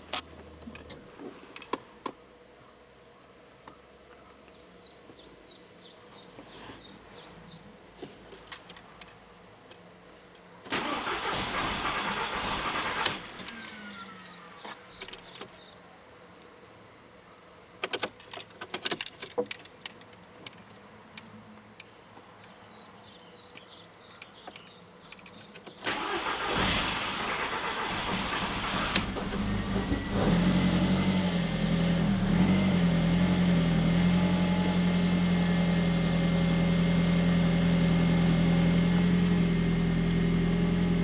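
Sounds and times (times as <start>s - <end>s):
car engine cranking on starter: 10.7s - 14.0s, 25.8s - 30.5s.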